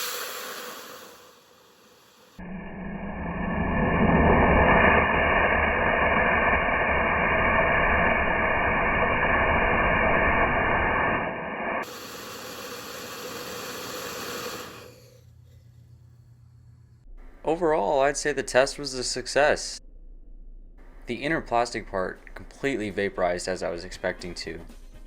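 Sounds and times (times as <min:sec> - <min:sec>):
rocket motor hissing: 0:00.0 - 0:15.2.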